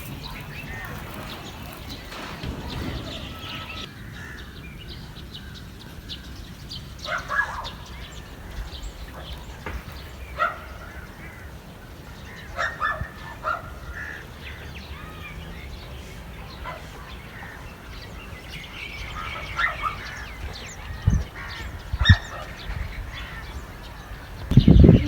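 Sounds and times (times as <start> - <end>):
dull thumps: 0.0 - 3.9
poultry calling: 0.0 - 4.6.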